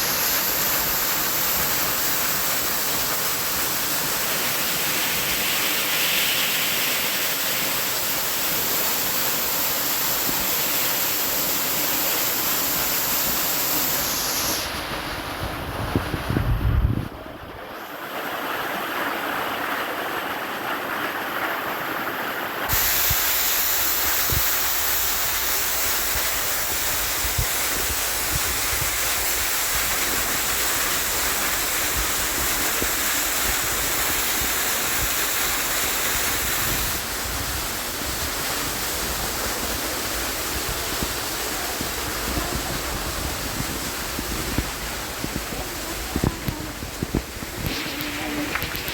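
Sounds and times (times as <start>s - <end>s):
rushing water: 0.0s - 48.9s.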